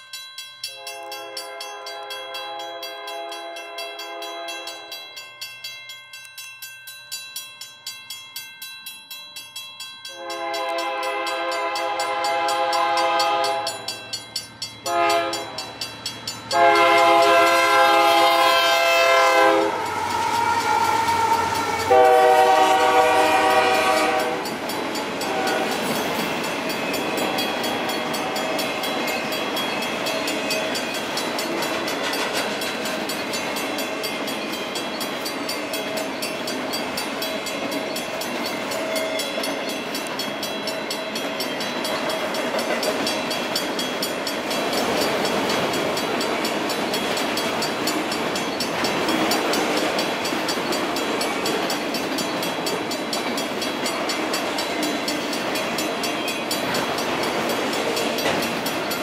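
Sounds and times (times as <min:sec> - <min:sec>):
train wheels on rails: 0:00.0 - 0:59.0
locomotive air horn blasts: 0:00.7 - 0:04.9, 0:10.1 - 0:13.8, 0:14.8 - 0:15.6, 0:16.5 - 0:24.5, 0:25.2 - 0:25.9.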